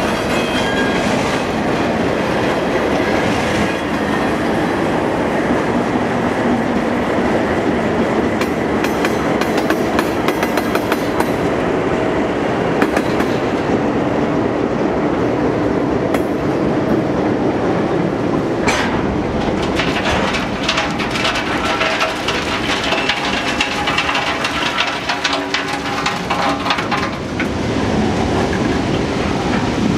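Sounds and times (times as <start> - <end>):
train heavy rumble: 0.0 - 29.9
freight cars rattling and clanking: 18.3 - 29.9.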